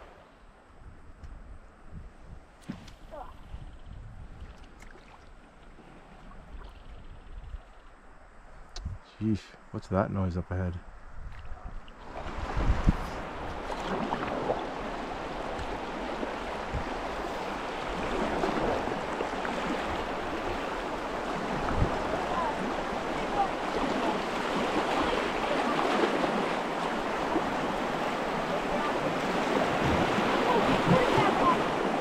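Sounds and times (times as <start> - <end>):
water rushing over rapids: 13.1 - 32.0.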